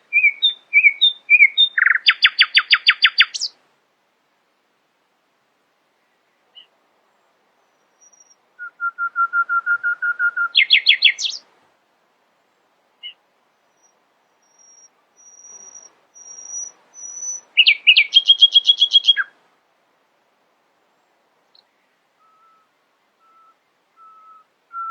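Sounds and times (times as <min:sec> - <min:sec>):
nightingale trilling: 0:00.1 - 0:03.5, 0:07.8 - 0:11.4, 0:13.0 - 0:19.3
thin high whistle: 0:22.2 - 0:24.9.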